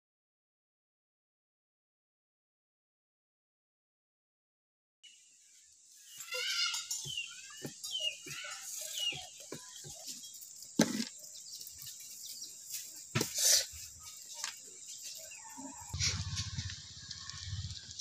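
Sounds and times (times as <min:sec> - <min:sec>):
birds chirping: 0:05.0 - 0:18.0
low rumble: 0:15.9 - 0:18.0.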